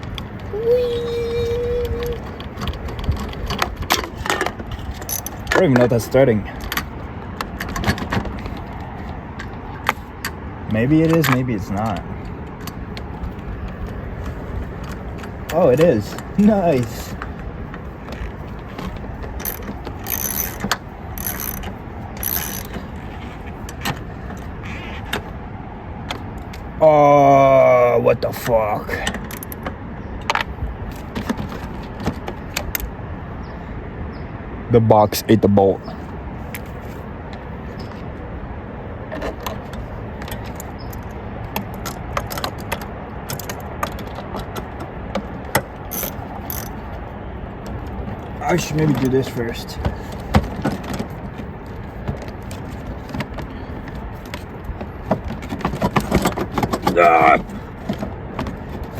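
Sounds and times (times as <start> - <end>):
metal tools clinking: 2.2 - 6.8, 18.0 - 23.4, 45.9 - 46.9
ratchet wrench ratcheting: 5.0 - 5.4, 19.4 - 22.8, 45.9 - 46.8
sharp metal clicks: 18.1 - 22.9, 40.2 - 46.9.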